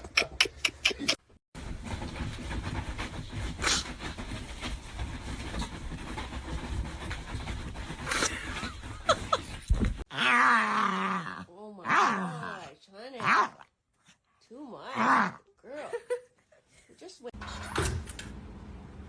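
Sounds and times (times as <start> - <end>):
dog panting: 2.5 - 9.4.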